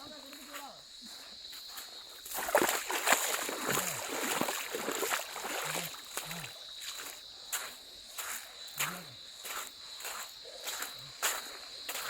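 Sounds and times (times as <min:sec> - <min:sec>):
water splashing and sloshing: 0:01.8 - 0:07.2.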